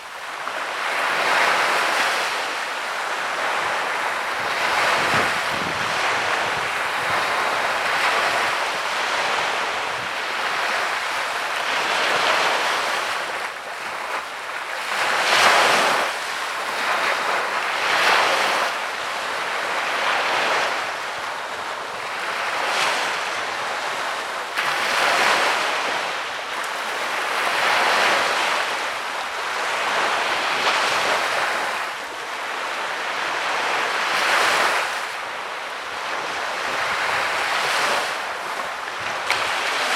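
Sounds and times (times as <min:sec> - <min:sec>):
sea waves breaking on beach: 0:00.0 - 0:39.9.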